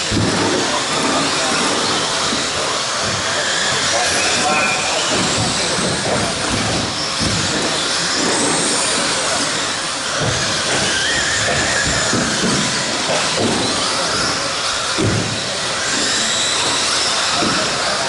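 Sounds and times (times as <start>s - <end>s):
high motor whines: 0.0s - 18.0s
hiss of running rc trucks: 0.0s - 18.0s.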